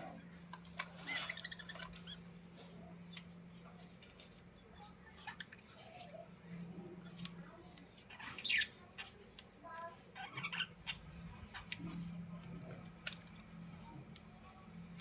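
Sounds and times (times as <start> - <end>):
small bird calling: 1.0 - 2.3, 8.1 - 9.2, 10.2 - 11.8.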